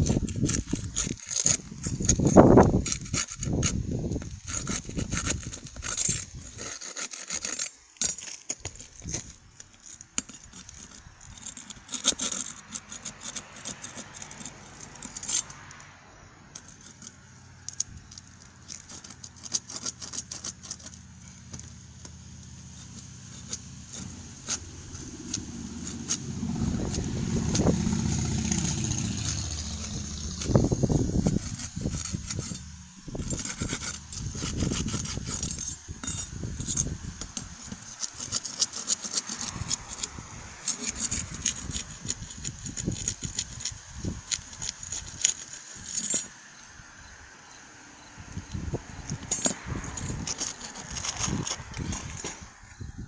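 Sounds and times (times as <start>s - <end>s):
scrapes and rustles on roof: 0.0s - 15.9s, 49.0s - 52.8s.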